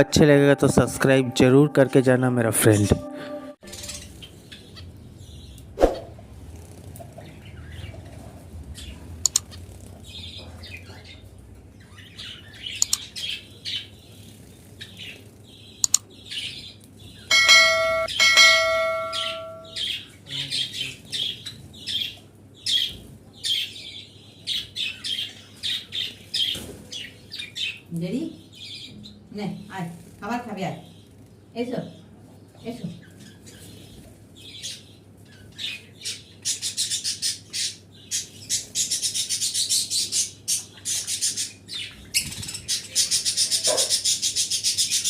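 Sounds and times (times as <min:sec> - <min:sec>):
ringing tone: 0:00.0 - 0:04.1, 0:17.3 - 0:19.8
caged birds chirping: 0:03.6 - 0:45.0.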